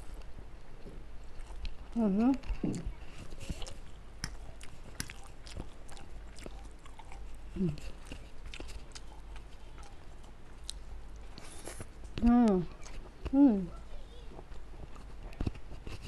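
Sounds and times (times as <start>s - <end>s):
person chewing noodles: 0.0s - 12.2s.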